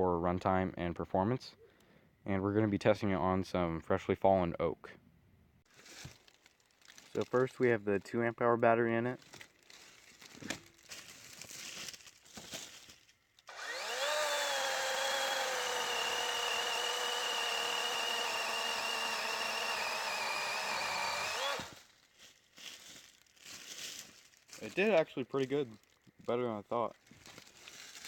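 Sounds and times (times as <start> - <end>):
electric chainsaw cutting wood: 13.5 - 21.8.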